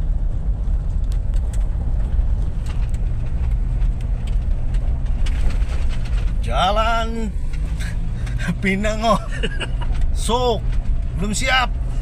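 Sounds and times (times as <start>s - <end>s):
vehicle rumbling on rough road: 0.0s - 12.0s
light knocks and rattles: 0.9s - 6.5s.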